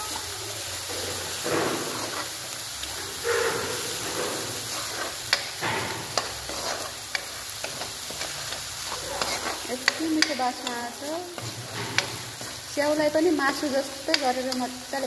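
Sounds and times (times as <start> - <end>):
onions frying in hot oil: 0.0 - 15.0
spatula stirring and scraping: 0.8 - 15.0
spatula tapping on pan: 5.3 - 6.3, 9.2 - 12.6, 13.5 - 14.7.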